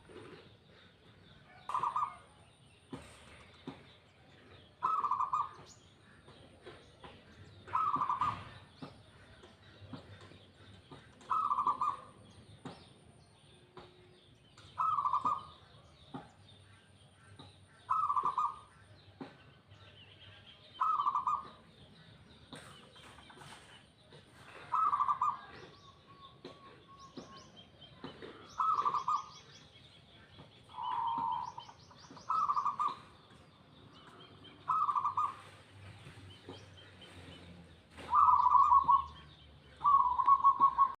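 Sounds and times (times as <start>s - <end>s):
small birds chirping: 0.0s - 41.0s
dove cooing: 4.8s - 5.6s, 7.7s - 8.6s, 11.3s - 12.1s, 14.8s - 15.5s, 17.9s - 18.6s, 20.8s - 21.6s, 24.5s - 25.6s, 28.3s - 29.4s, 32.2s - 33.1s, 34.7s - 35.5s, 38.0s - 39.2s, 39.8s - 41.0s.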